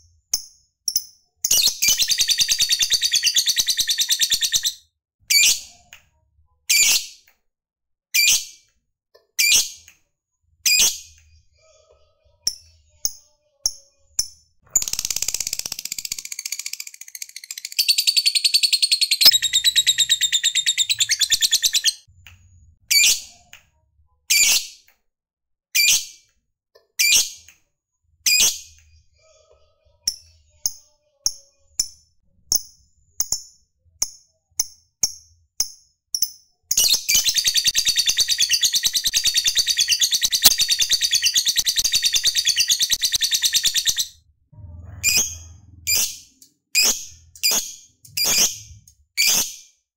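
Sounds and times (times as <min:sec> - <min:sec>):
lovebird chirps: 0:00.3 - 0:05.7, 0:12.5 - 0:22.1, 0:36.2 - 0:44.2
lovebird trilling: 0:14.7 - 0:22.0.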